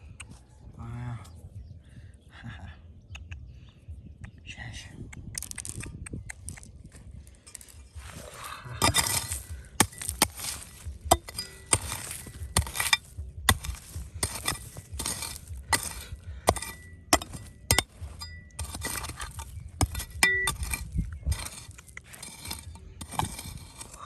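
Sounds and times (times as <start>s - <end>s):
hard objects clinking and scraping: 5.4s - 24.0s
scraping rustle: 7.4s - 24.0s.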